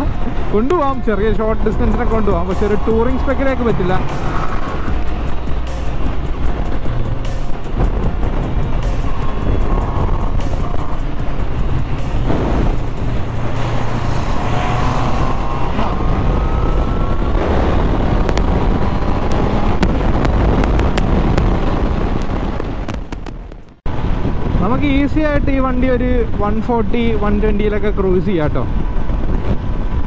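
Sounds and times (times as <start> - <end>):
wind rush: 0.0 - 30.0
motorcycle engine accelerating: 1.6 - 23.8.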